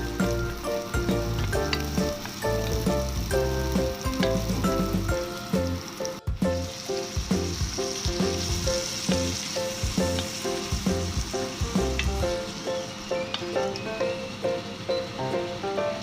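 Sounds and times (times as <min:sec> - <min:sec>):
background music with bass: 0:00.0 - 0:12.4
food sizzling in a pan: 0:00.0 - 0:16.0.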